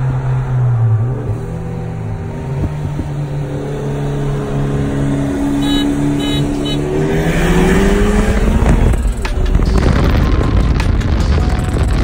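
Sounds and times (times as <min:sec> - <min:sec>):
car engines accelerating: 0:00.0 - 0:12.0
short high beeps: 0:05.5 - 0:06.9.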